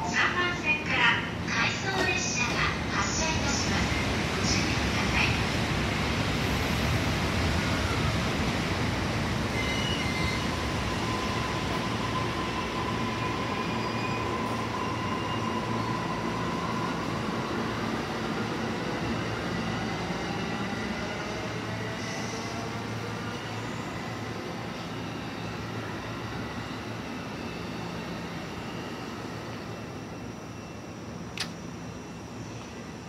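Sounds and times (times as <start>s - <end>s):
steady train whine: 0.0s - 33.0s
train wheels rumbling on rail: 1.5s - 23.4s
high wheel squeals: 9.5s - 16.2s.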